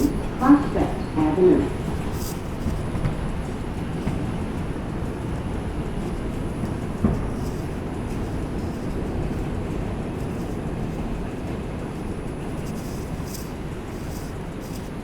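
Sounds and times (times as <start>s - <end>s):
subway car rumble and hiss: 0.0s - 15.0s.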